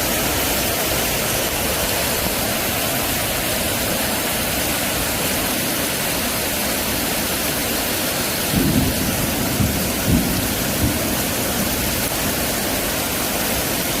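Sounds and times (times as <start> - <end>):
heavy rain pouring: 0.0 - 14.0
low thunder rumbles: 8.3 - 13.0.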